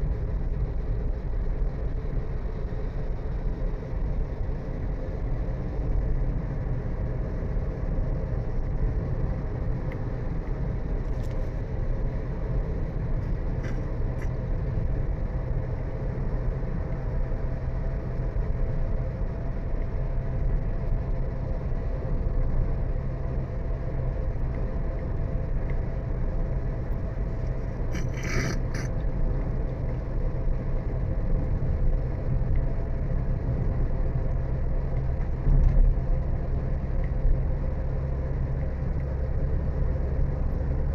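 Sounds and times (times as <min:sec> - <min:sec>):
vehicle driving on road: 0:00.0 - 0:40.9.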